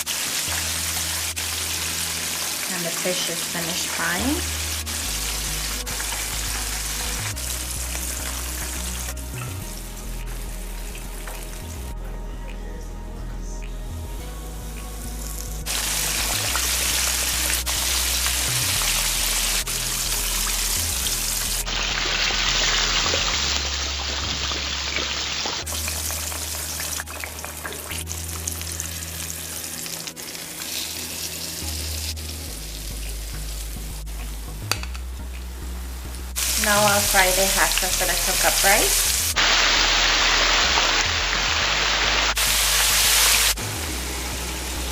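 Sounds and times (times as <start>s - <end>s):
fish sizzling in hot oil: 0.0s - 9.1s, 15.7s - 32.3s, 36.4s - 43.6s
soft background music: 0.0s - 44.9s.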